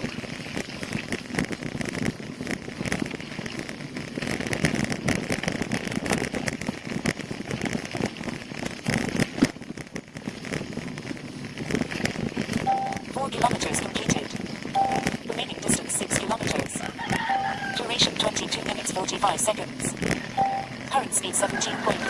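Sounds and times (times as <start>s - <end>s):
bicycle rattling on rough road: 0.0s - 12.7s.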